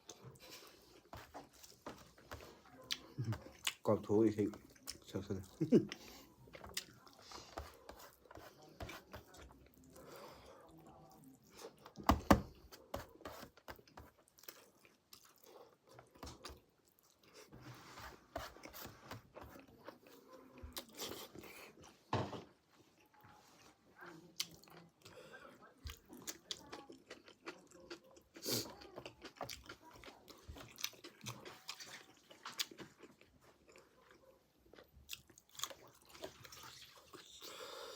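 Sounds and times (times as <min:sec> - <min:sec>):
person chewing and crunching: 0:00.0 - 0:10.0, 0:13.6 - 0:17.5, 0:25.9 - 0:37.9.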